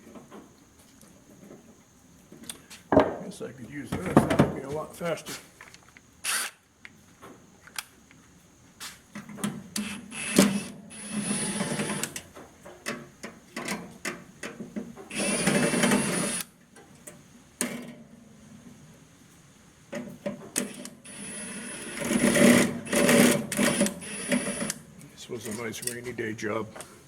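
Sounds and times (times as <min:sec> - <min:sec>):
power driver running: 0:09.8 - 0:12.2, 0:15.1 - 0:16.5, 0:20.6 - 0:24.8
clicks and knocks of tools: 0:23.5 - 0:26.2.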